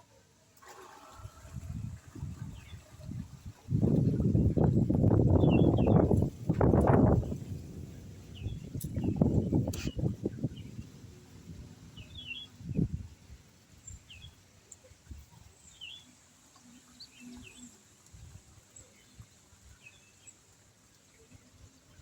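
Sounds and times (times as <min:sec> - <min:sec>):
low rustles and thumps: 0:01.6 - 0:11.5
small birds chirping: 0:02.2 - 0:07.7, 0:08.3 - 0:22.0.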